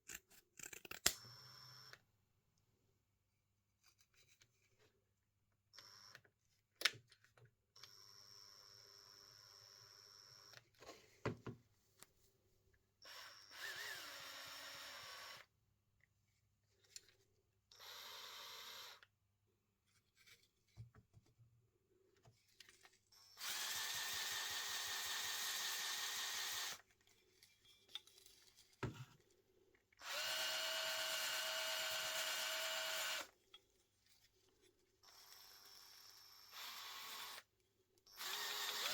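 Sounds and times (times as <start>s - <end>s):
power tool motor running: 13.5s - 15.3s.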